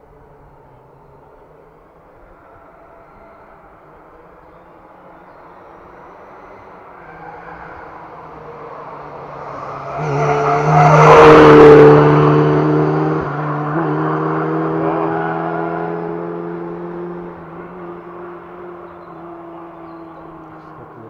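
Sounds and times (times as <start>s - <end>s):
rally car engine passing by: 4.5s - 21.0s.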